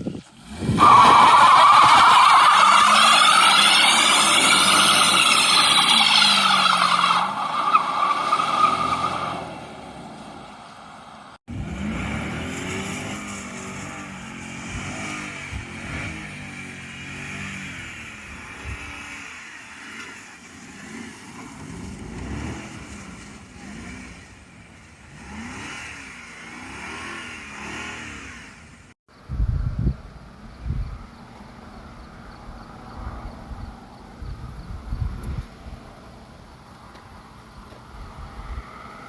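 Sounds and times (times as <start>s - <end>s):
car engine revving hard: 11.5s - 16.3s, 21.8s - 24.2s, 25.1s - 28.6s.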